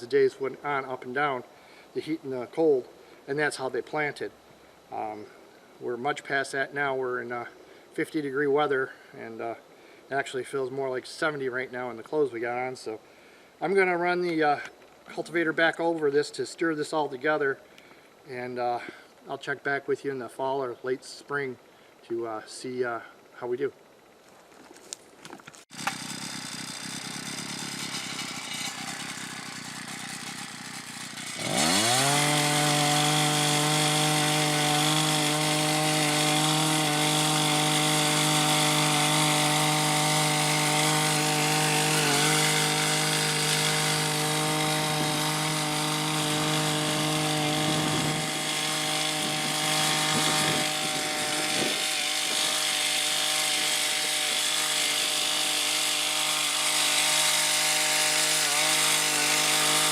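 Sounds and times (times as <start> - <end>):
small gas engine revving: 25.7 - 59.9.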